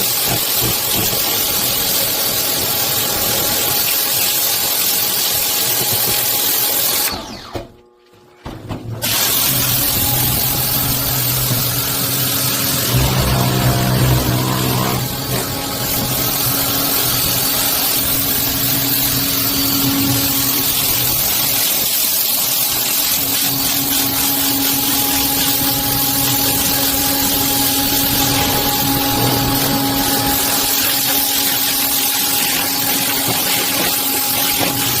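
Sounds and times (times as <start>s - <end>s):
high-pressure water spray hissing: 0.0s - 7.1s, 9.0s - 35.0s
pump motor humming: 9.0s - 35.0s.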